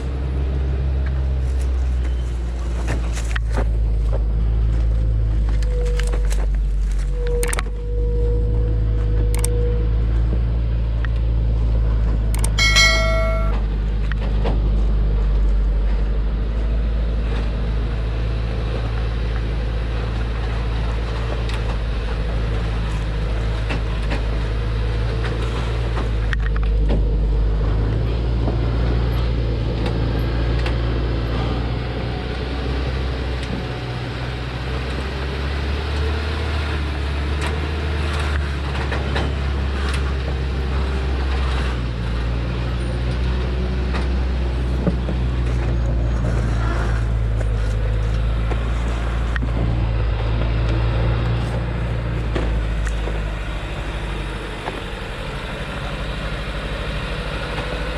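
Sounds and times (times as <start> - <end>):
truck engine rumbling: 0.0 - 57.9
short horn beep: 12.5 - 13.6.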